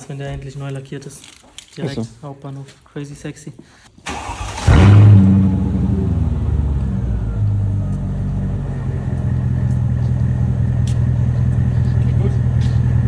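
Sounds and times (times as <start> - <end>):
car engine idling: 4.1 - 13.0.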